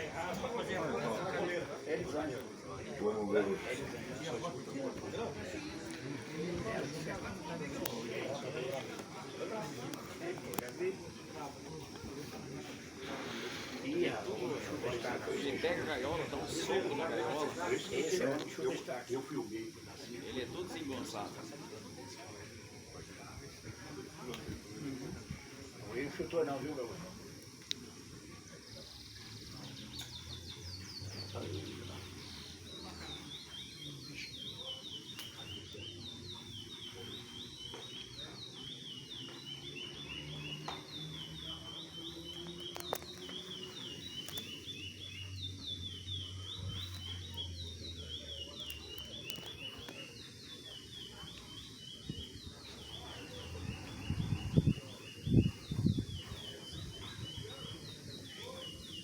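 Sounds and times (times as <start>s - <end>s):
songbird singing: 3.6s - 59.0s.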